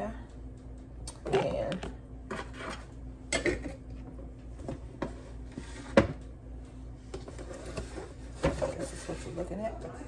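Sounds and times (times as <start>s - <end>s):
dishes and utensils clinking: 2.3s - 3.8s.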